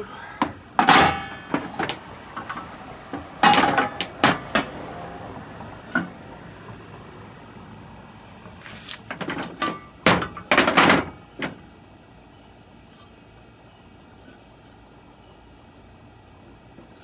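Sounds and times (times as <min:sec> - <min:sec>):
hose reel parts clunking: 0:00.4 - 0:04.8, 0:08.5 - 0:11.7.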